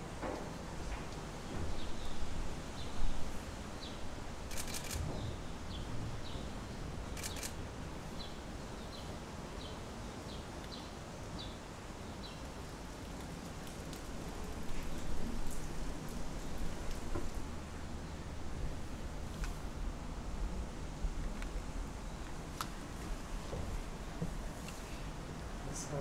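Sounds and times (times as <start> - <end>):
background hiss: 0.0 - 26.0
camera shutter clicks: 4.5 - 5.0, 7.2 - 7.6.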